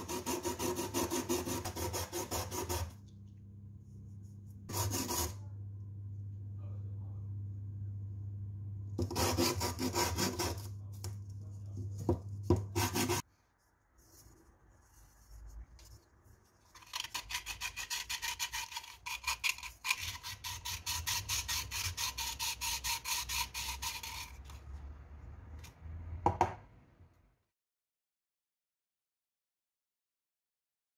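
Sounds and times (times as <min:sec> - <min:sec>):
low hum: 0:05.4 - 0:09.0
rapid rubbing strokes: 0:12.8 - 0:13.2, 0:16.7 - 0:24.6.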